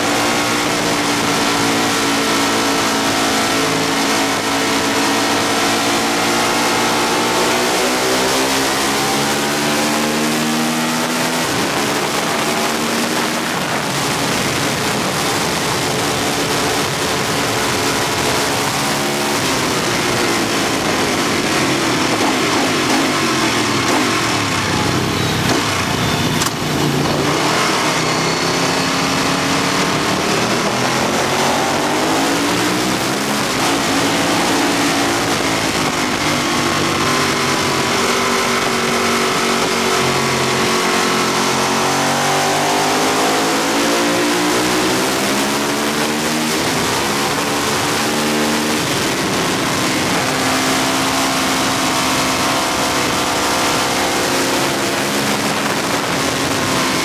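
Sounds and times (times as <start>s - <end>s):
motorcycle engine accelerating: 0.0s - 57.0s
wind rush on microphone: 11.1s - 25.9s, 44.4s - 57.0s.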